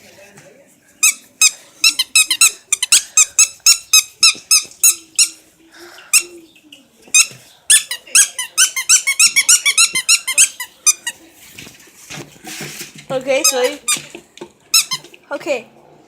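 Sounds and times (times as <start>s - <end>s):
squeaky dog toy squeaking: 1.0s - 5.4s, 7.1s - 11.2s, 13.2s - 14.1s, 14.7s - 15.1s.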